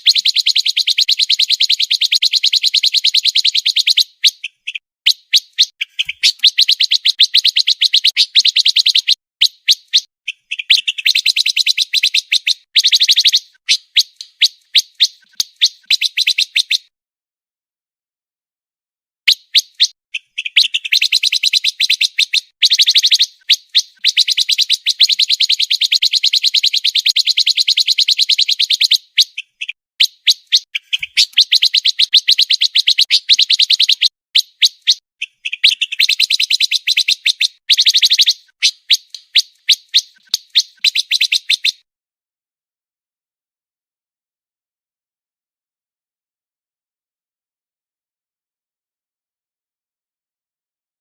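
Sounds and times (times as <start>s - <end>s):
bird singing fast high chips: 0.0s - 16.9s, 19.3s - 41.9s.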